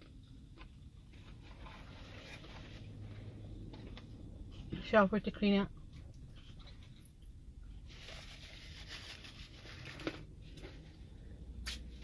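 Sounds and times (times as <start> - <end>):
rustling: 1.1 - 4.0, 7.8 - 11.0
chewing: 5.7 - 7.4.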